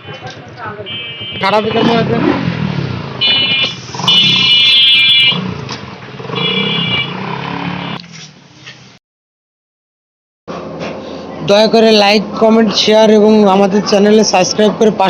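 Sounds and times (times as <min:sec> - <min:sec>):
motorcycle horn beeps: 0:00.0 - 0:02.6, 0:03.2 - 0:05.6, 0:06.2 - 0:08.1
motorcycle engine revving: 0:00.2 - 0:08.4.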